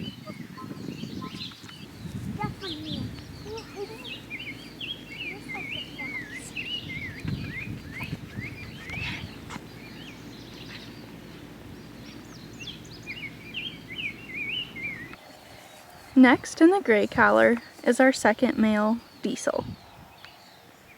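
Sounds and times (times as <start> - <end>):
low background rumble: 0.0 - 15.2
low thumps: 0.0 - 15.2
small birds chirping: 0.0 - 20.9.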